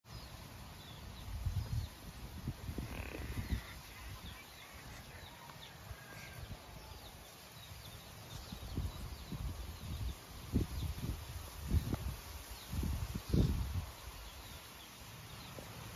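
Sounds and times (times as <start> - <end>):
faint bird chirps: 2.7 - 10.1.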